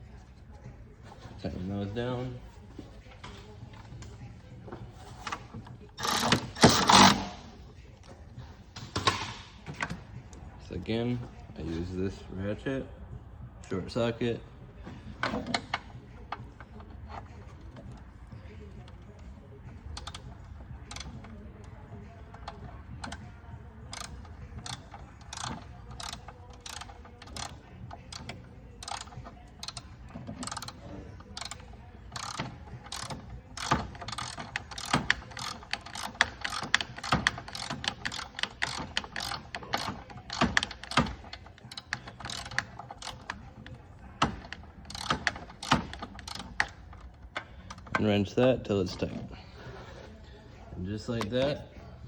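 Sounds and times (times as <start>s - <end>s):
ratchet clicking: 6.0s - 7.5s, 19.9s - 21.3s, 23.9s - 48.0s.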